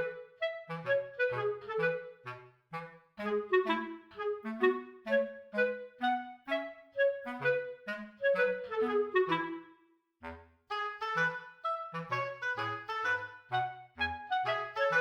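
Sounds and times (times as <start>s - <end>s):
light instrumental tune: 10.7s - 15.0s.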